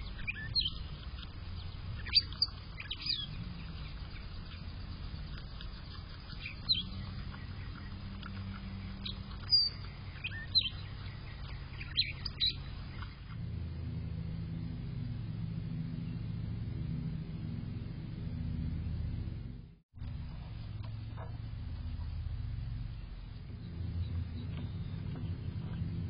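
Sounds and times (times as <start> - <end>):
small birds chirping: 0.0 - 13.4, 20.0 - 26.0
steady low hum: 0.0 - 26.0.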